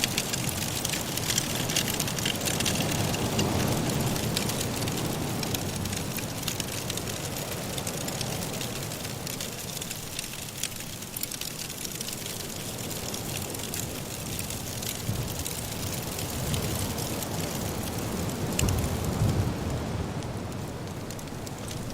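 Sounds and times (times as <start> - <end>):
wood fire crackling and popping: 0.0 - 21.9
blizzard wind rushing: 13.2 - 21.9.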